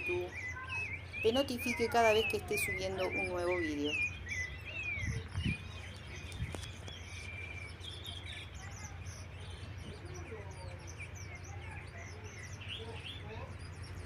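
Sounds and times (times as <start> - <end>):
small birds twittering: 0.0 - 14.0
car low rumble: 2.8 - 14.0.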